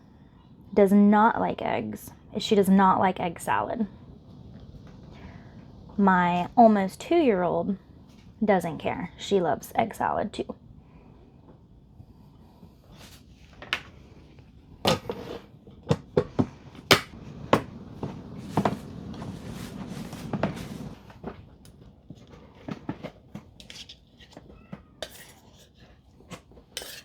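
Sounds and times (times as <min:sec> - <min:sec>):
rustling: 0:16.6 - 0:27.0
dishes and utensils clinking: 0:23.7 - 0:27.0.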